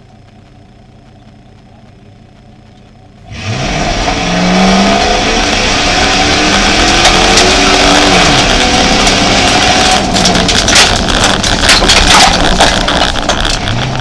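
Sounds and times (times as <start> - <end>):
tyres on gravel: 0.0 - 14.0
car engine revving: 3.2 - 14.0
stones ticking: 5.4 - 14.0.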